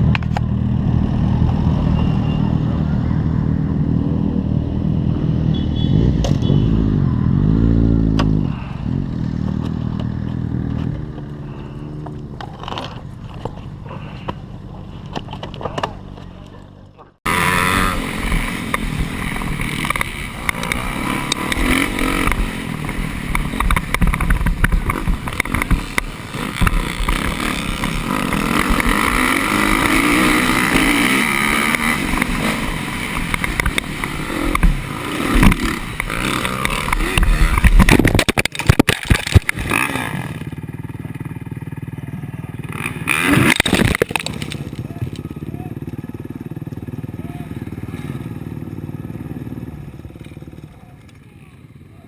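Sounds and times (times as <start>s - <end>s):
motorcycle engine revving: 0.0s - 52.0s
sharp knocks and clatter: 23.3s - 27.3s.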